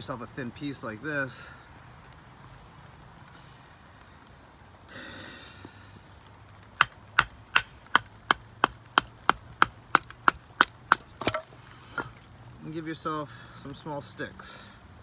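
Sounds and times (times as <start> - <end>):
chopping kindling wood: 6.8 - 12.1.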